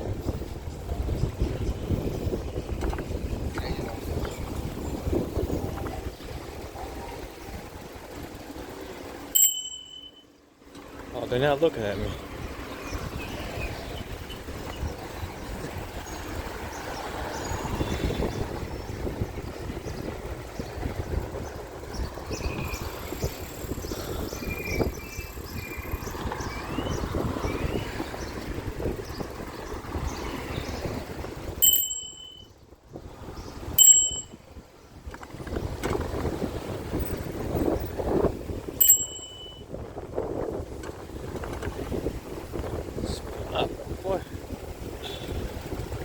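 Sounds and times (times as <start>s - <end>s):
wind buffeting microphone: 0.0s - 9.2s, 11.3s - 46.0s
street noise: 0.0s - 46.0s
bicycle bell ding: 9.4s - 10.3s, 31.6s - 32.5s, 33.8s - 34.4s, 38.8s - 39.6s.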